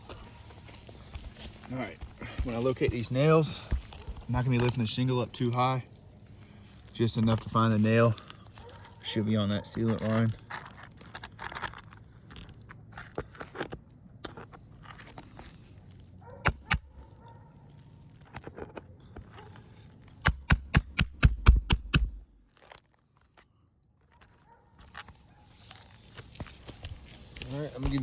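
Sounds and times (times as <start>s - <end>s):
hammer strikes: 16.4s - 16.9s, 20.2s - 22.4s
sharp knocks: 16.4s - 16.9s, 20.3s - 22.3s
roofing shingle scraping: 24.2s - 28.0s.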